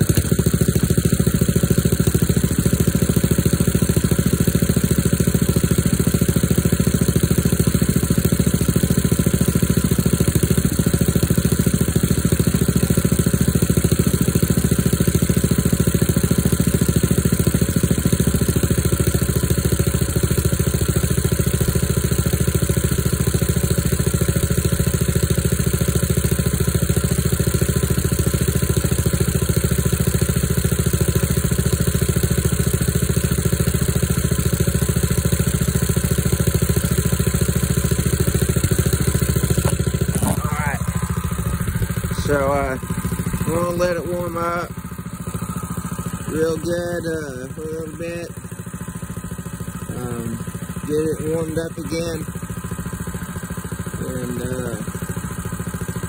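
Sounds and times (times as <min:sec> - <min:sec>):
vehicle engine idling: 0:00.0 - 0:56.0.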